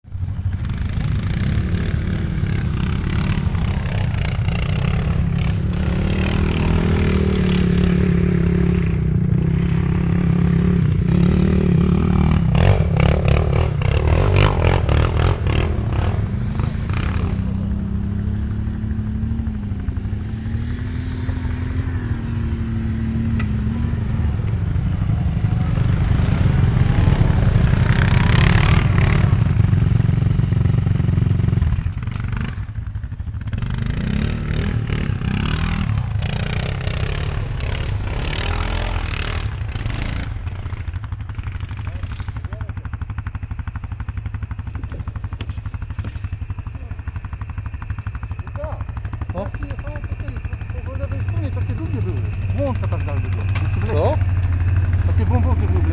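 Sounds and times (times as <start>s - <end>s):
quad bike engine revving: 0.2s - 55.9s.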